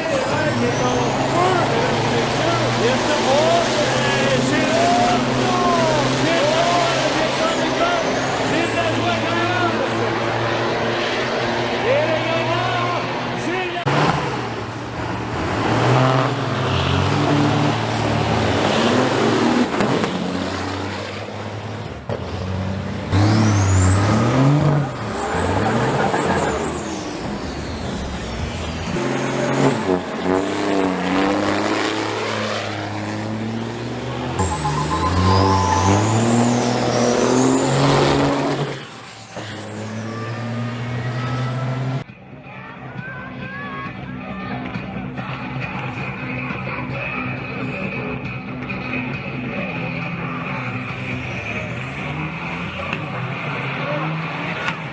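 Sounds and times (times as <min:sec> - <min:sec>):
diesel truck engine accelerating: 0:00.0 - 0:42.2, 0:44.1 - 0:54.9
faint high whistle: 0:34.4 - 0:36.4.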